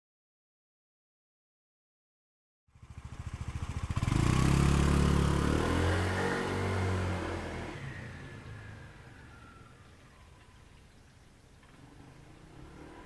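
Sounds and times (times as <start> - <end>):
scooter engine revving: 2.8 - 10.4, 11.6 - 13.0.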